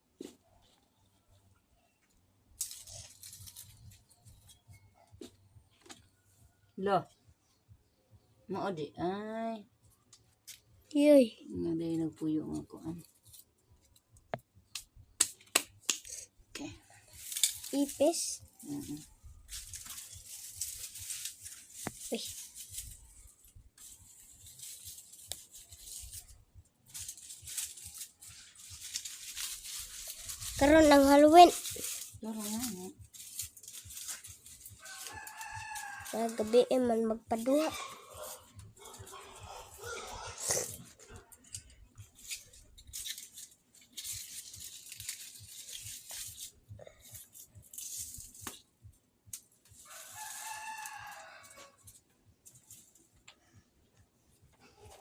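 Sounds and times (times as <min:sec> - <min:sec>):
hands rustling and scraping: 0:00.1 - 0:06.4, 0:12.5 - 0:55.0
rooster crowing: 0:34.8 - 0:36.7, 0:38.1 - 0:40.4, 0:49.8 - 0:51.9.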